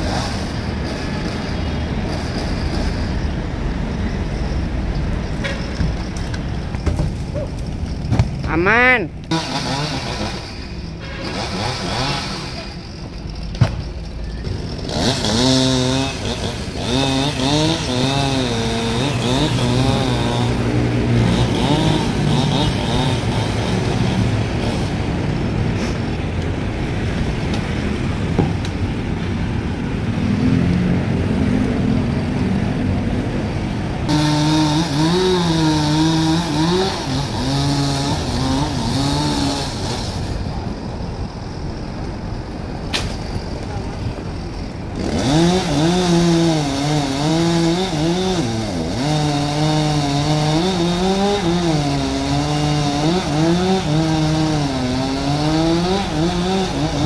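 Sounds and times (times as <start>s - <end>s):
chainsaw cutting: 0.0s - 3.0s, 7.4s - 13.5s, 14.4s - 26.0s, 34.0s - 40.7s, 44.4s - 57.0s.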